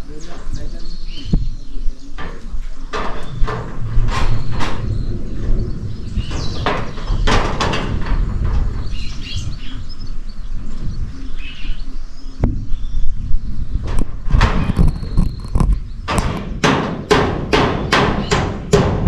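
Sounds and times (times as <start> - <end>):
birds chirping: 0.0 - 19.0
wind rumbling on microphone: 0.0 - 19.0
sharp knocks: 2.2 - 9.8, 13.8 - 19.0.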